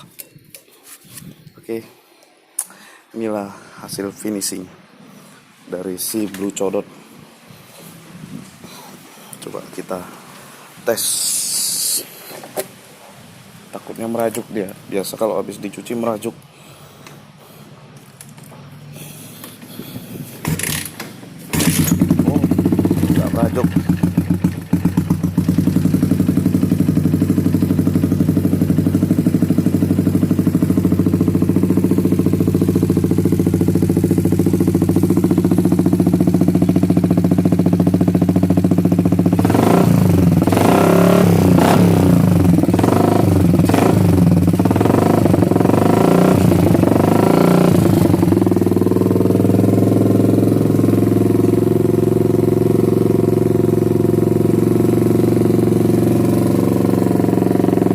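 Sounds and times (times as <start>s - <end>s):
motorcycle engine idling and revving: 18.4s - 57.9s.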